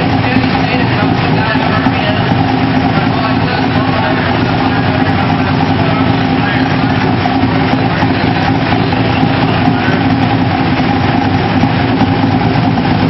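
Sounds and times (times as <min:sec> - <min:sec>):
car engine running steadily: 0:00.0 - 0:13.0.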